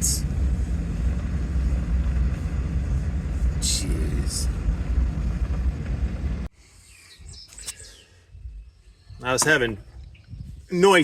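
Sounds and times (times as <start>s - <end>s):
tractor engine rumbling: 0.0s - 6.5s.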